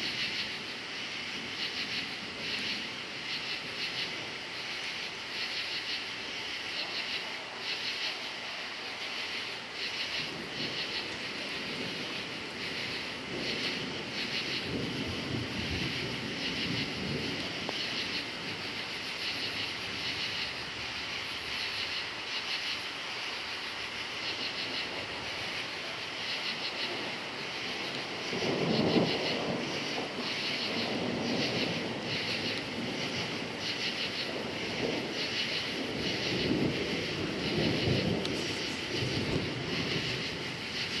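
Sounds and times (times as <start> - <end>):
crickets chirping: 0.0 - 41.0
distant thunder rumbling: 8.9 - 21.9, 24.0 - 41.0.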